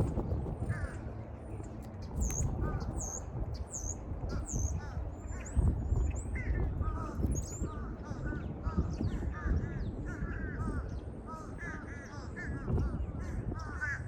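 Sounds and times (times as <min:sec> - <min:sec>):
small birds chirping: 0:00.0 - 0:13.8
low rumble: 0:00.0 - 0:14.0
crows cawing: 0:00.7 - 0:01.1, 0:04.3 - 0:05.7, 0:06.4 - 0:14.0.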